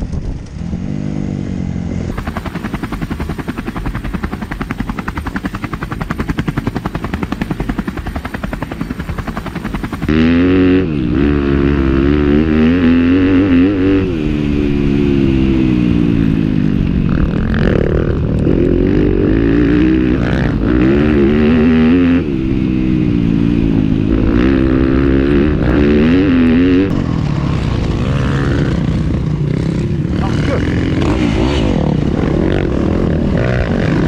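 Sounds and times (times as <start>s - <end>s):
motorcycle engine accelerating: 0.0s - 34.0s.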